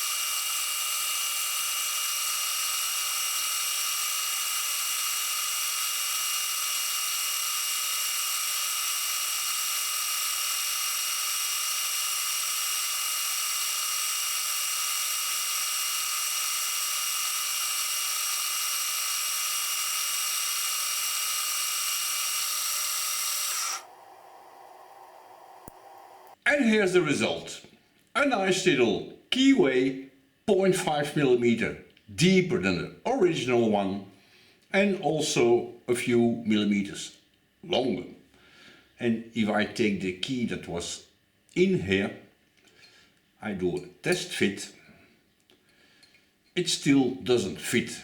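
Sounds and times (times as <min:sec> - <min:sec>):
milling machine whine: 0:00.0 - 0:26.4.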